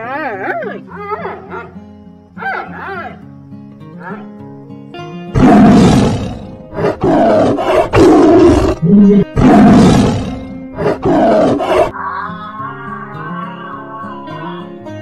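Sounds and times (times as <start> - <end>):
background music: 0.0 - 15.0
big cat roaring: 5.3 - 12.0.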